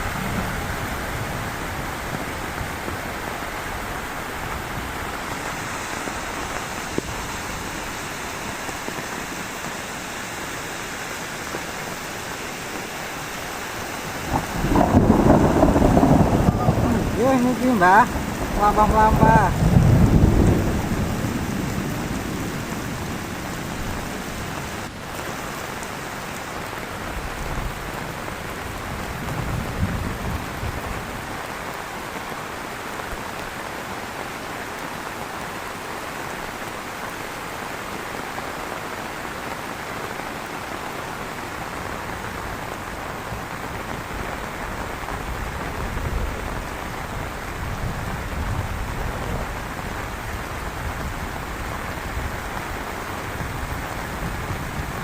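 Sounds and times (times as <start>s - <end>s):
low thunder rumble: 0.0s - 7.4s, 14.2s - 24.9s
heavy rain falling: 0.0s - 55.0s.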